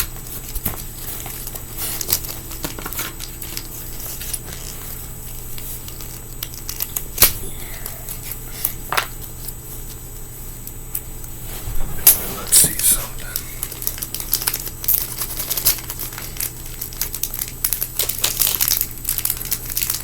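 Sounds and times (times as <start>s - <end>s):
sticker crinkling: 0.1s - 7.1s, 12.7s - 20.0s.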